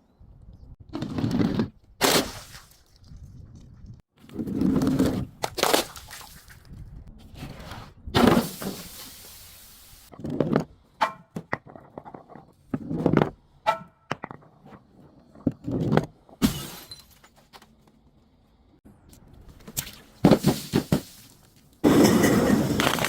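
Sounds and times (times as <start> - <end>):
glass bottles breaking: 16.4 - 17.5, 19.8 - 23.0.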